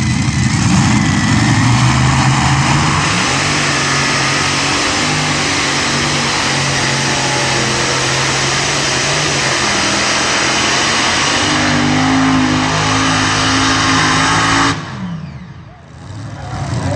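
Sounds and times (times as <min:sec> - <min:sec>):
engine running flat out: 0:00.0 - 0:16.9.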